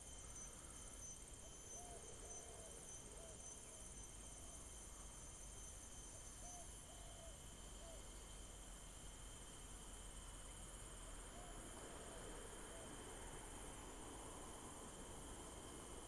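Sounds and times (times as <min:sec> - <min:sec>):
faint high-pitched whine: 0:00.0 - 0:16.0.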